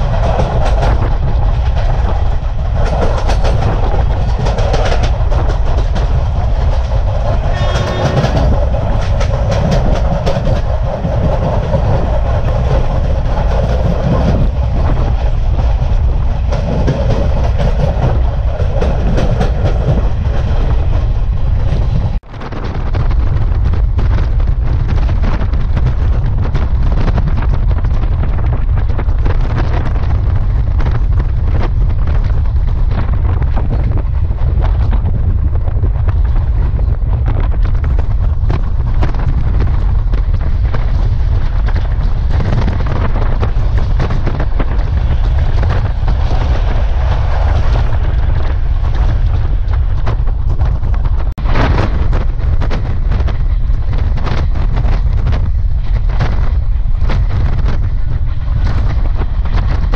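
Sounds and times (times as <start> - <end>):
wheel clickety-clack: 0.0 - 22.2
train rushing past: 0.0 - 23.0, 40.1 - 59.9
rumble of moving train: 0.0 - 59.9
wind on microphone: 0.0 - 59.9.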